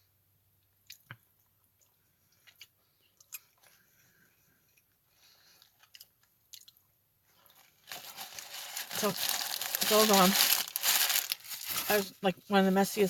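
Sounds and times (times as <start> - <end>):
faint chewing: 0.6 - 9.1.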